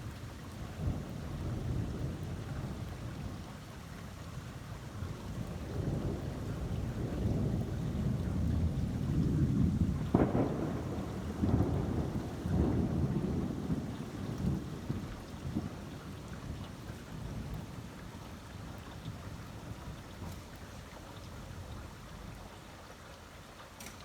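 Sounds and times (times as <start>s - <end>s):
thunder rumbling: 5.6s - 16.6s
sharp thunder crack: 10.1s - 13.5s.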